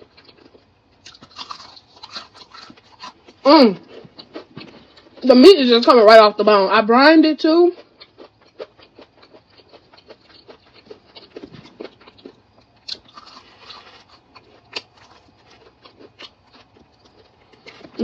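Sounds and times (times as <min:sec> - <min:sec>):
chewing crispy fried chicken: 0:00.0 - 0:05.9, 0:07.2 - 0:18.0
crackles of fried crust: 0:07.4 - 0:18.0.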